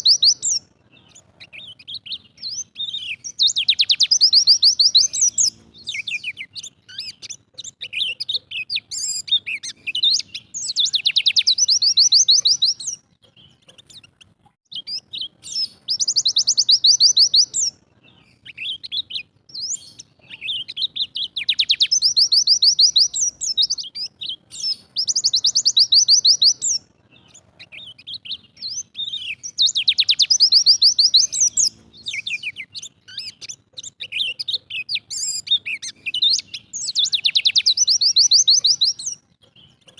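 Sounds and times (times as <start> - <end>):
bird trilling: 0.0 - 39.2
bird chirps: 0.0 - 39.9.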